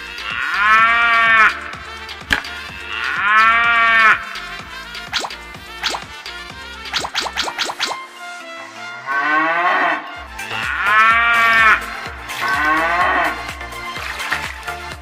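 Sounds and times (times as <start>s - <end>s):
background music with beat: 0.0s - 15.0s
cow mooing: 0.1s - 1.8s, 2.7s - 4.5s, 9.0s - 13.5s.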